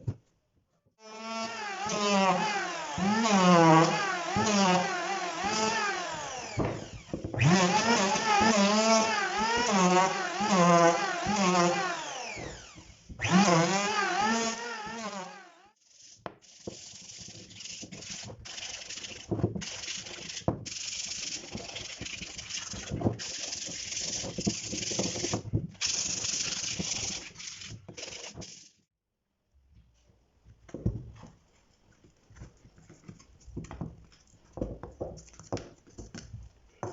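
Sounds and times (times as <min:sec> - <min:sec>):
power tool whining: 0:01.0 - 0:15.8
wood rasping: 0:01.2 - 0:28.7.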